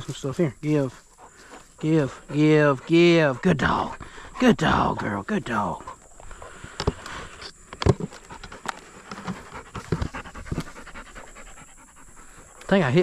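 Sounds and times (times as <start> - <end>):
dog panting: 0.0 - 7.4, 8.0 - 13.0
rustling: 5.8 - 12.7.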